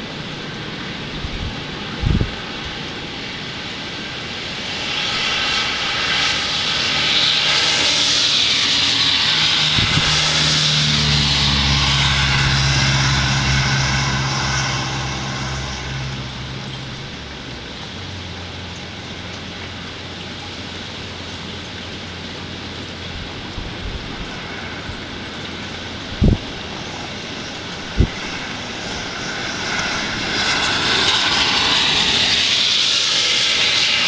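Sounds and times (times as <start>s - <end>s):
low engine hum: 0.0s - 34.0s
vehicle passing by hiss: 4.4s - 21.5s.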